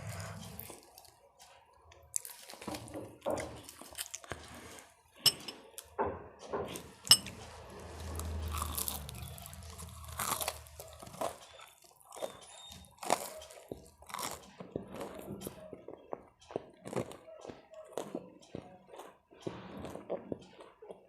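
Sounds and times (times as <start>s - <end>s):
person crunching crisp food: 2.0s - 2.9s, 3.6s - 4.9s, 7.6s - 15.4s.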